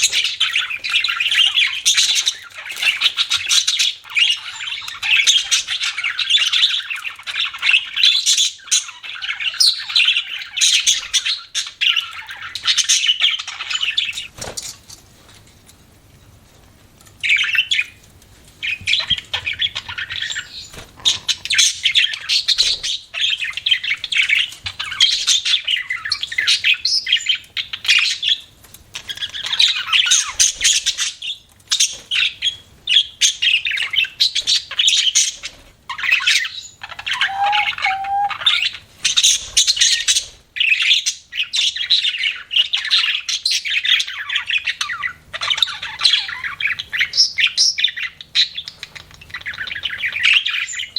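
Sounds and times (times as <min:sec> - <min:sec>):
budgerigars chattering and warbling: 0:00.0 - 0:14.3, 0:29.0 - 0:50.9.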